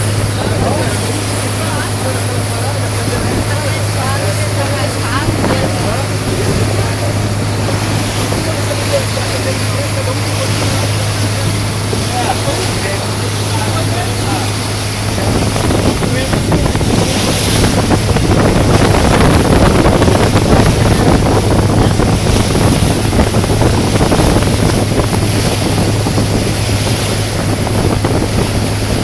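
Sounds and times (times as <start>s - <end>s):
motorboat engine humming: 0.0s - 29.0s
water rushing along hull: 0.0s - 29.0s
wind buffeting microphone: 0.0s - 29.0s.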